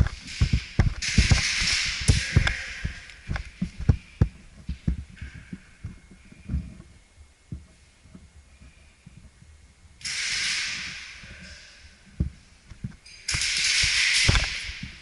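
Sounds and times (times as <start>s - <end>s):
footsteps thudding: 0.0s - 6.9s
loud hiss: 10.0s - 12.6s.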